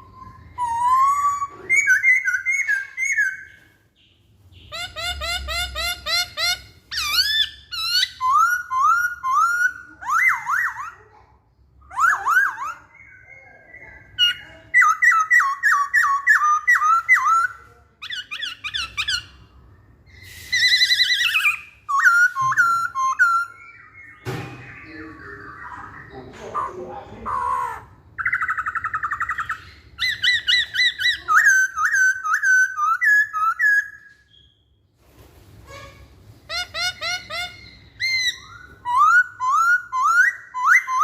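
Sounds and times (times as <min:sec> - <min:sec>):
bird singing whistled phrases: 0:00.0 - 0:03.6, 0:20.1 - 0:26.2, 0:28.2 - 0:34.7, 0:36.6 - 0:41.0.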